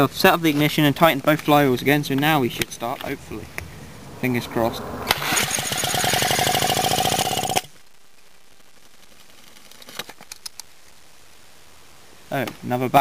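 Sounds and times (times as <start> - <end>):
engine backfire: 5.0 - 7.8
two-stroke engine pulses: 5.1 - 7.7
faint clicks: 8.2 - 11.0.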